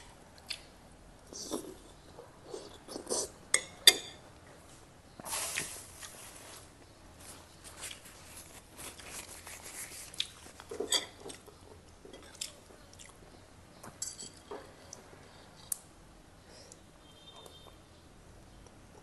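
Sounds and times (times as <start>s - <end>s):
chewing food: 7.7s - 15.8s.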